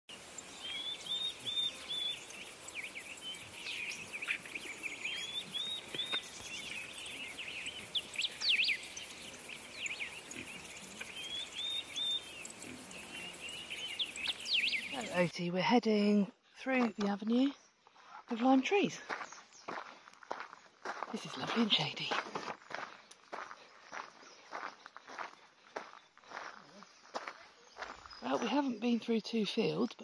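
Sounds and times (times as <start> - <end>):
songbirds singing and calling: 0.1 - 30.0.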